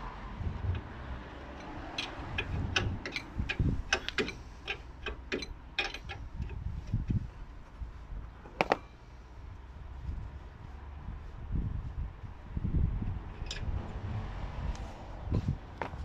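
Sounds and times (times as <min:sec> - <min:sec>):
hand tools clicking: 0:01.5 - 0:06.2.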